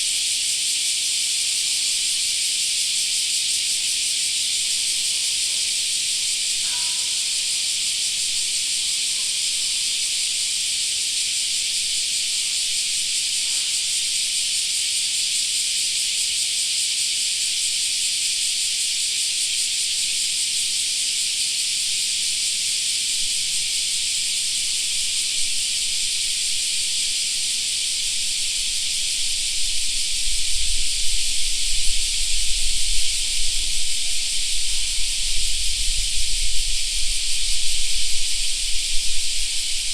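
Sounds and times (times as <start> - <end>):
cicadas shrilling: 0.0 - 39.9.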